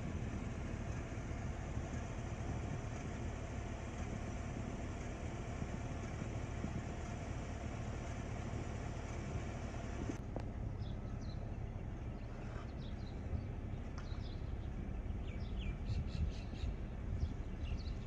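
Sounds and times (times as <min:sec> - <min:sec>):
low rumble: 0:00.0 - 0:18.0
small birds chirping: 0:10.7 - 0:18.0.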